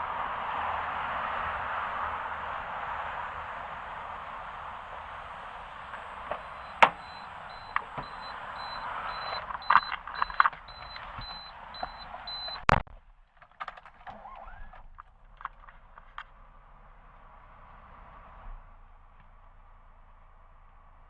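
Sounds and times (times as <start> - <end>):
car warning chime beeping: 5.7 - 12.8
car door shutting: 5.8 - 12.8.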